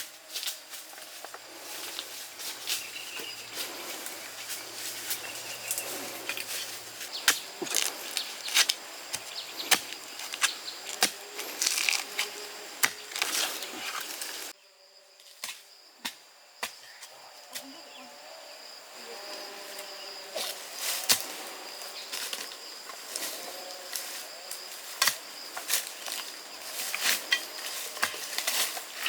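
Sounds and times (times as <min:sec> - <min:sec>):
steady rustle: 0:00.0 - 0:14.6, 0:20.4 - 0:29.0.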